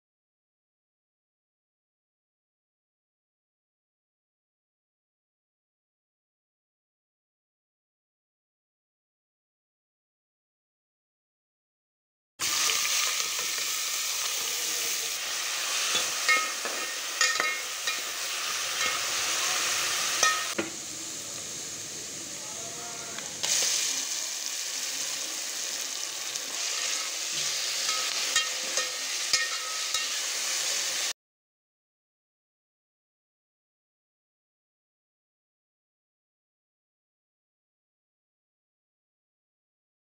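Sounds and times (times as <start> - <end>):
food sizzling in hot oil: 12.4 - 31.2
spoon clinking against pan: 15.9 - 18.2, 18.8 - 19.1, 20.2 - 20.6, 27.8 - 30.2.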